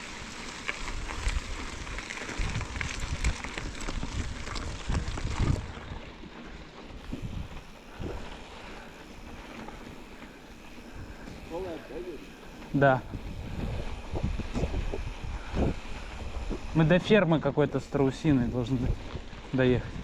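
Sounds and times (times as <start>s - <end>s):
wind buffeting microphone: 0.8s - 6.3s, 7.0s - 20.0s.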